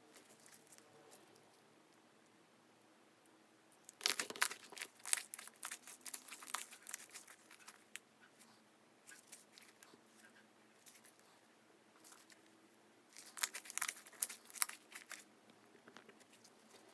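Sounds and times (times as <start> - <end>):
slime squished by hand: 3.9 - 7.8.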